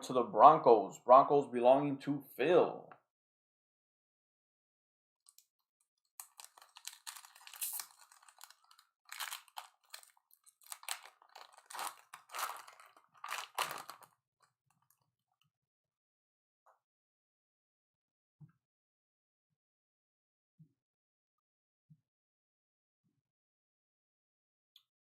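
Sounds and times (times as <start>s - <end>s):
foil wrapper crinkling and tearing: 6.2s - 14.2s.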